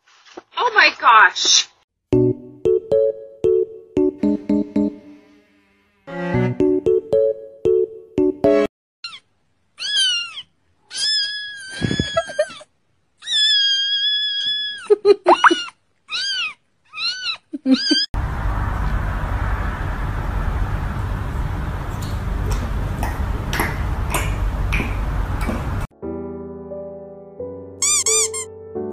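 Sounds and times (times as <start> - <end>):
cat meowing: 9.0 - 12.6, 13.2 - 18.1.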